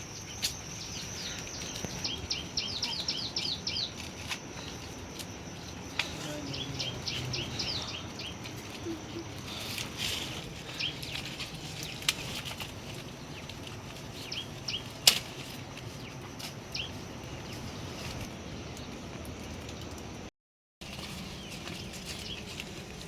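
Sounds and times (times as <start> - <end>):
small bird chirping: 0.0 - 4.4, 5.9 - 15.1, 15.9 - 17.8.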